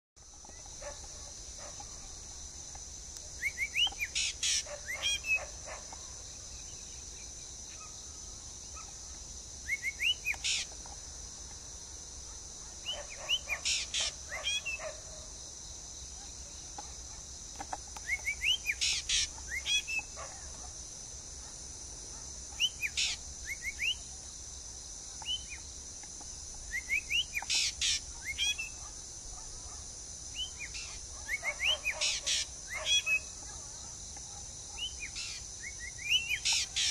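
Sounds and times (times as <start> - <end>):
bird singing chirps: 3.4 - 9.0, 9.6 - 10.8, 12.8 - 14.9, 18.0 - 20.6, 22.5 - 24.1, 25.2 - 25.7, 26.6 - 28.9, 30.3 - 33.6, 34.7 - 36.9.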